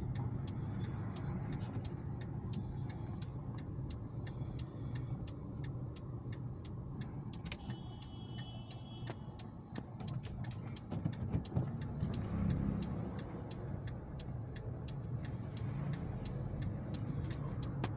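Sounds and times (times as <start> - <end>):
fast regular ticking: 0.0 - 17.9
traffic rumble: 0.0 - 17.9.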